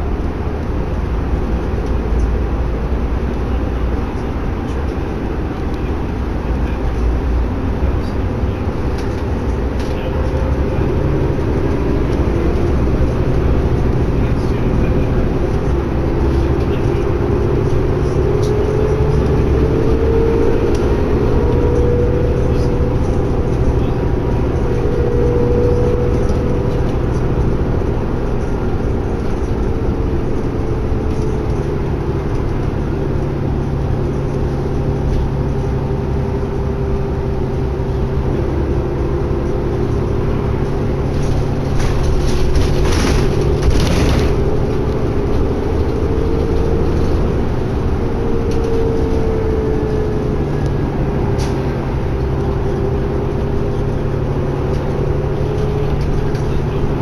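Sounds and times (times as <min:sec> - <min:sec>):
bus engine and road drone: 0:00.0 - 0:57.0
brief loud clatter: 0:41.8 - 0:44.4.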